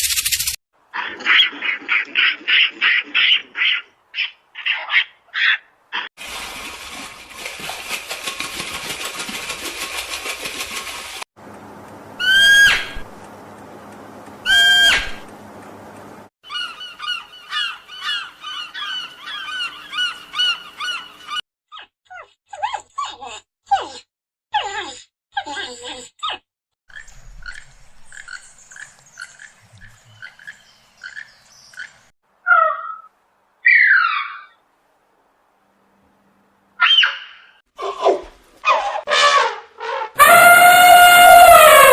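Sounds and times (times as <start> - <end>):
pulsing animal call: 12.2 - 13.1, 14.4 - 15.2, 40.2 - 41.9.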